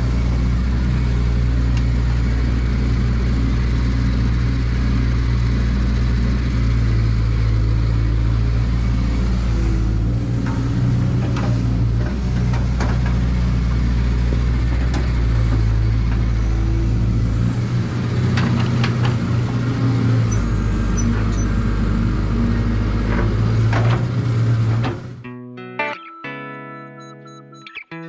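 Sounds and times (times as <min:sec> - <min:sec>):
excavator diesel engine running: 0:00.0 - 0:25.3
electric guitar music: 0:25.2 - 0:28.0.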